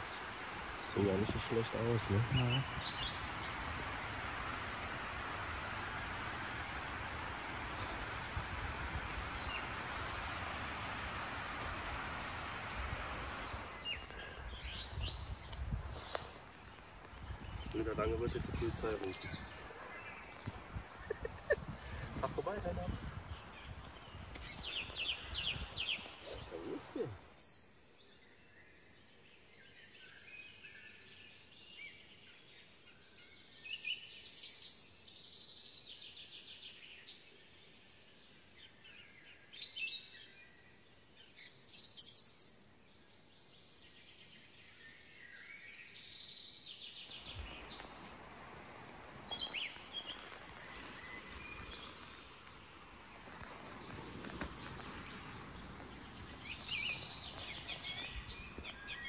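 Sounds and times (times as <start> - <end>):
songbirds chirping: 0.0 - 59.0
rustling: 47.1 - 58.9.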